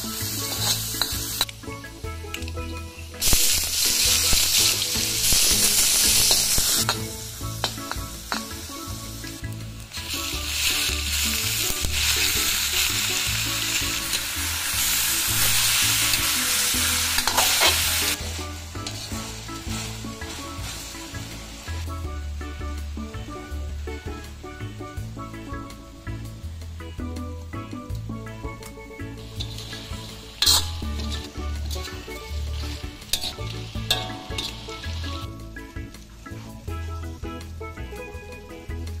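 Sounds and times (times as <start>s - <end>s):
spatula scraping wok: 0.0s - 1.5s, 3.2s - 8.7s, 10.0s - 21.9s, 29.2s - 35.3s
food sizzling in hot oil: 0.0s - 37.6s.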